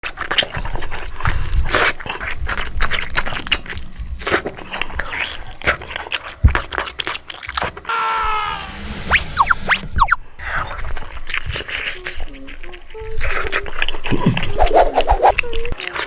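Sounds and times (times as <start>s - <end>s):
chewing with wet crunches: 0.0s - 7.9s, 10.4s - 14.7s, 15.4s - 16.0s
short falling pitched sound: 7.9s - 10.6s.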